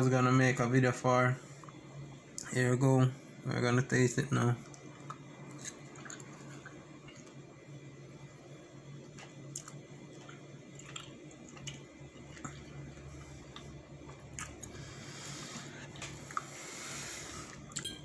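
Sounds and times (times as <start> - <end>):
faint low hum: 0.0 - 18.0
person chewing: 4.7 - 6.8, 9.2 - 17.9.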